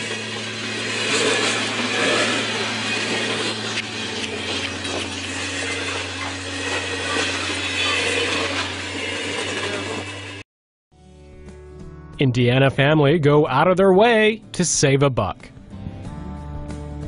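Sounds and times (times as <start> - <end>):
loud rushing noise: 0.0 - 10.4
low train engine hum: 0.0 - 10.4.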